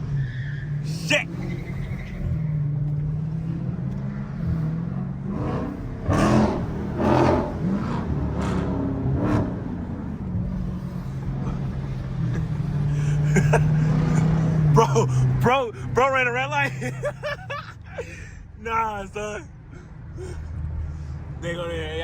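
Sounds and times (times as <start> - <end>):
engine rev blips: 0.0 - 11.5.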